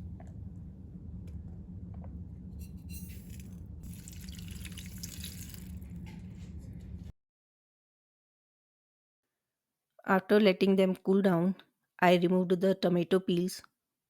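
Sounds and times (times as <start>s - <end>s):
steady low hum: 0.0s - 7.1s
liquid bubbling in a pot: 3.8s - 6.0s.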